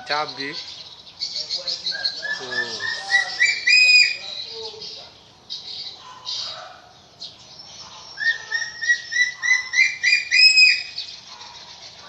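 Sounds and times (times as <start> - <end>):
eagle yelping calls: 1.6 - 5.0, 7.8 - 11.7.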